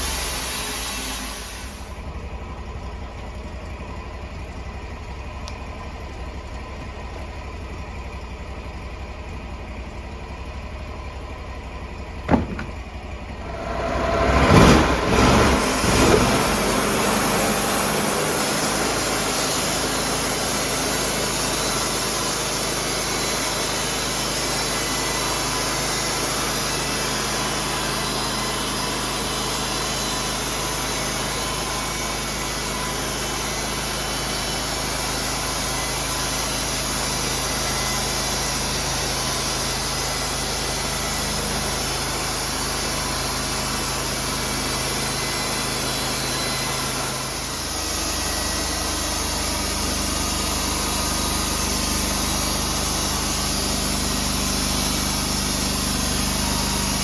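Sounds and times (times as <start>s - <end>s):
sawmill engine running: 0.0s - 57.0s
sharp knock: 12.3s - 12.8s.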